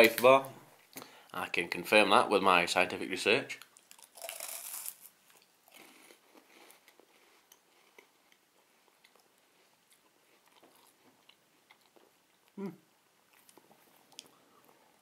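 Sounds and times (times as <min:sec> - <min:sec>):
chewing crunchy wafer: 0:03.6 - 0:12.6.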